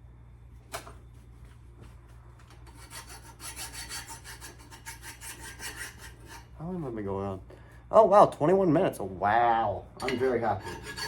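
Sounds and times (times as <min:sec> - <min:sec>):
sandpaper scraping rusty steel: 0:02.7 - 0:06.5, 0:10.2 - 0:11.0.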